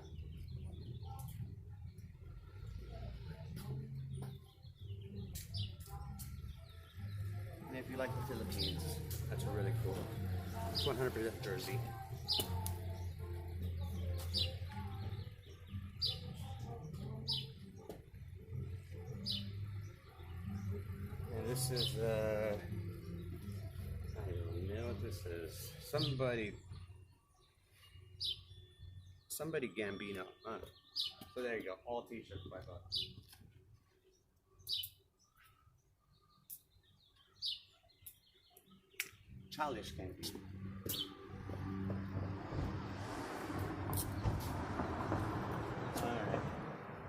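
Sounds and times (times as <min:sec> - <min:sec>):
bird chirping: 0:00.0 - 0:42.6.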